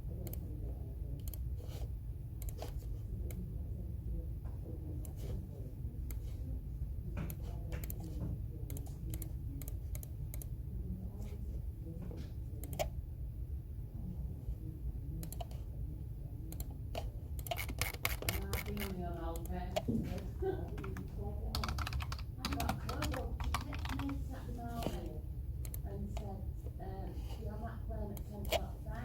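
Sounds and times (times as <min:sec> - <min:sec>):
low background rumble: 0:00.0 - 0:29.0
keyboard typing clicks: 0:01.2 - 0:01.5, 0:02.4 - 0:03.4, 0:07.2 - 0:10.6, 0:12.6 - 0:12.9, 0:15.2 - 0:15.6, 0:16.5 - 0:25.0, 0:25.6 - 0:26.3, 0:28.1 - 0:28.7.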